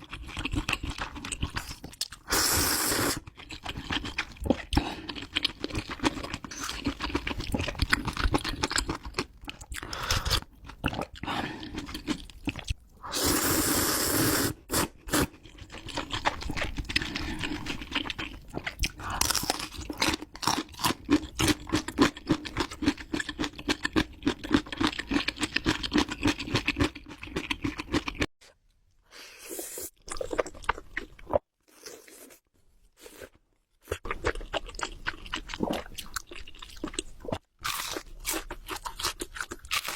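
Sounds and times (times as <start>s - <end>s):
chewing with crunching bites: 0.0s - 2.3s, 3.2s - 12.8s, 15.3s - 28.3s, 33.0s - 39.9s
wet mouth sounds: 0.4s - 15.4s.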